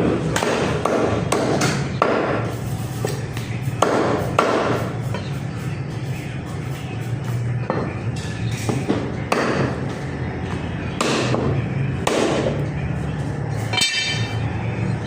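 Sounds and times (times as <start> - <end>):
cleaver chopping meat: 0.0 - 2.4, 3.8 - 4.8, 11.0 - 12.6.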